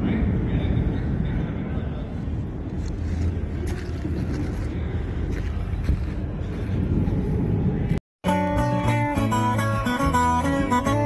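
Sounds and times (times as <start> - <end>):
acoustic guitar music: 8.2 - 11.0.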